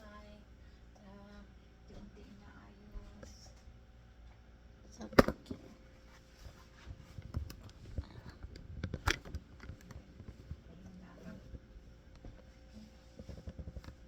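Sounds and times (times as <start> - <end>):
light tapping and clatter: 6.4 - 14.0.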